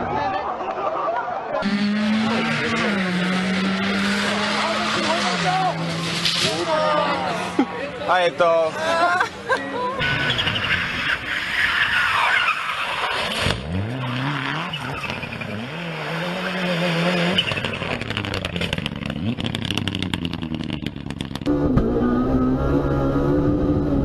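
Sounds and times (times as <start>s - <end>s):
tyre and road noise: 0.0s - 24.0s
rally car engine revving: 1.6s - 7.4s, 12.8s - 24.0s.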